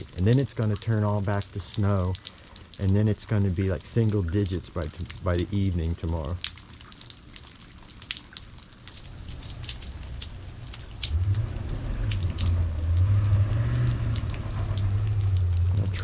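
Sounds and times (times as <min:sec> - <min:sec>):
freezing rain falling hard: 0:00.0 - 0:16.0
truck engine hum: 0:09.0 - 0:16.0.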